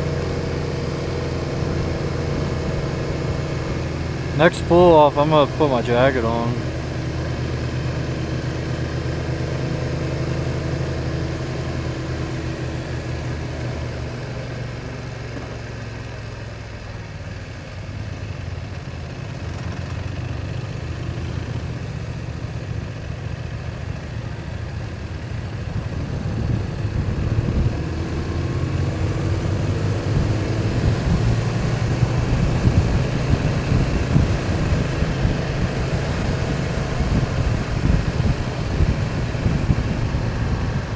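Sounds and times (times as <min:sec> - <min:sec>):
motorcycle engine running: 0:00.0 - 0:40.9
wind rumble on microphone: 0:25.5 - 0:40.9.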